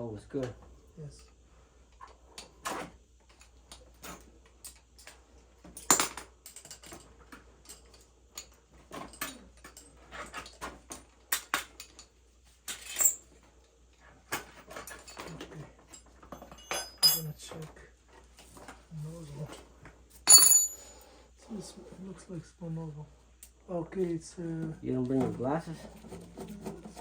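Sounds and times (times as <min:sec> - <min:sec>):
metal tools clinking: 0:12.7 - 0:13.3, 0:14.4 - 0:17.7, 0:20.1 - 0:21.1.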